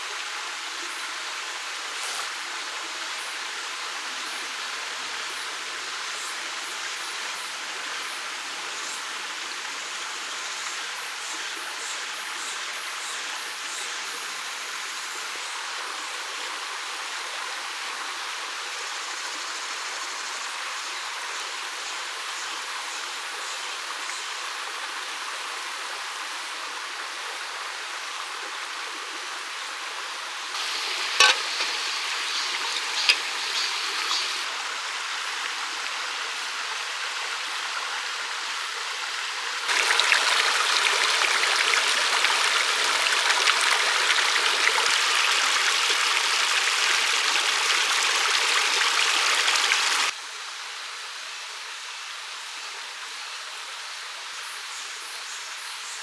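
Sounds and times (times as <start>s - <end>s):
stream water flowing: 0.0s - 10.6s, 24.8s - 50.2s.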